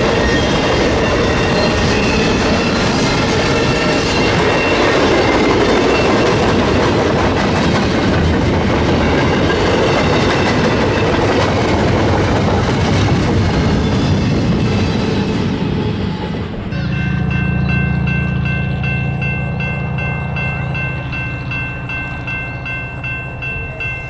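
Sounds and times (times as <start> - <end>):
train wheels clattering on rails: 0.0 - 24.0.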